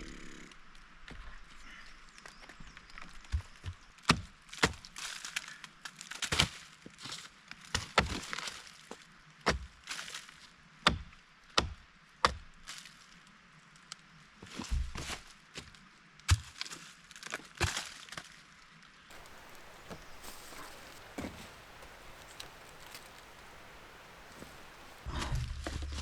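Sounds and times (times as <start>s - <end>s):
rustling: 19.1s - 25.1s
wood being chopped: 19.1s - 25.1s.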